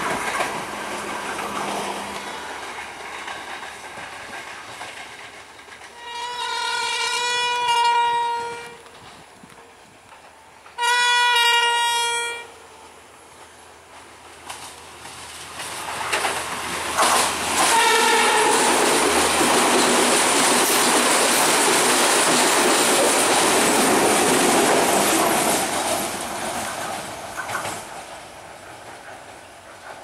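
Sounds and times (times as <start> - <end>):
train engine and wheel noise: 0.0 - 30.0
train horn blasts: 5.9 - 8.9, 10.8 - 12.9, 17.6 - 18.8.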